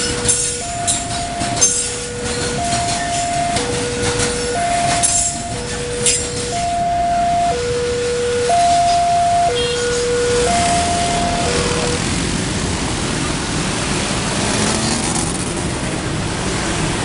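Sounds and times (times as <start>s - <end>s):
train wagon clanks: 0.0s - 6.8s
two-tone level-crossing alarm: 0.0s - 12.0s
freight train rumbling past: 0.0s - 17.0s.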